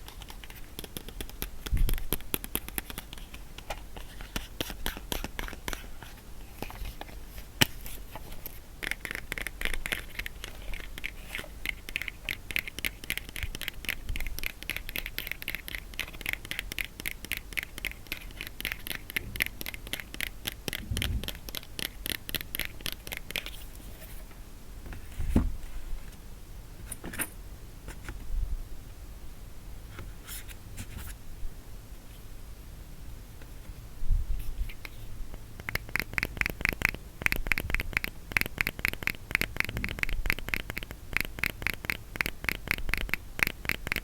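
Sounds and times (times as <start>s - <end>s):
rapid scratching on a box: 8.8s - 23.5s, 35.7s - 44.0s.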